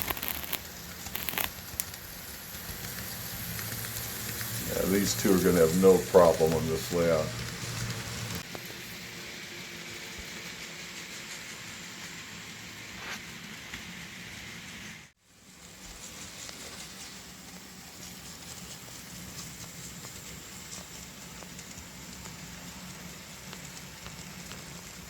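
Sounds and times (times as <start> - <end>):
model train wheels rattling: 0.0 - 14.8.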